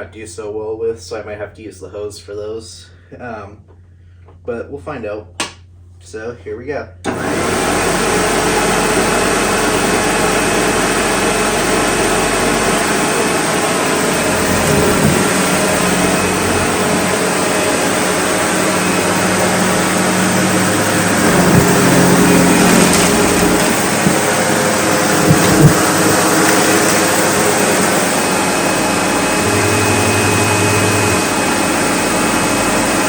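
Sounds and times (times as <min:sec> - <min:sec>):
vacuum cleaner running: 0:07.1 - 0:33.0.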